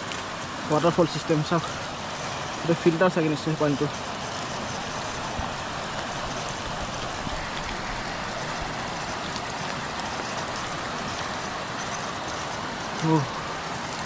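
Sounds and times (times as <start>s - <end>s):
water running: 0.0s - 14.0s.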